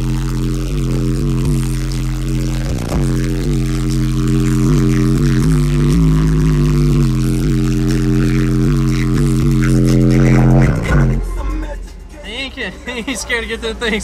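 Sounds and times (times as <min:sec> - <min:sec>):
loud bass-heavy music from subwoofers: 0:00.0 - 0:14.0.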